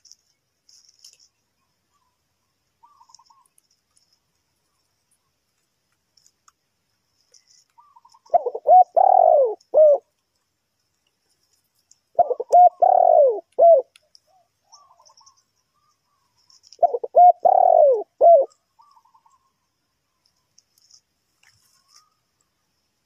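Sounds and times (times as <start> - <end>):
dove cooing: 7.8 - 10.1, 12.2 - 15.4, 16.4 - 19.3.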